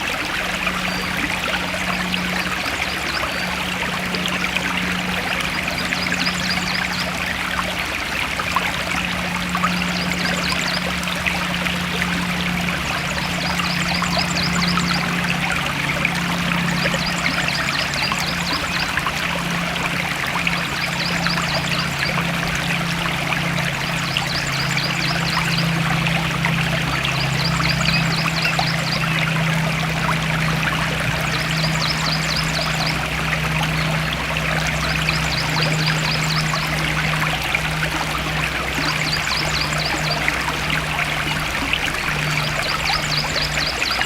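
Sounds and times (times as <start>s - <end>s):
steady low hum: 0.0s - 44.0s
stream water flowing: 0.0s - 44.0s.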